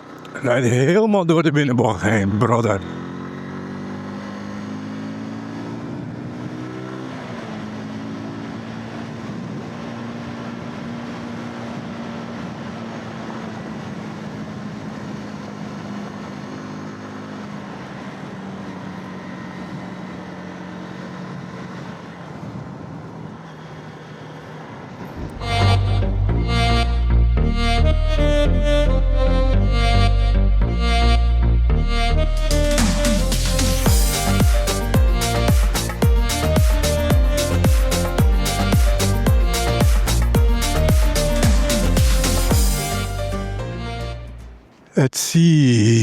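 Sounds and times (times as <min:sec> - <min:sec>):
wind and road noise: 0:00.0 - 0:27.7
motorcycle engine cruising: 0:00.0 - 0:44.9.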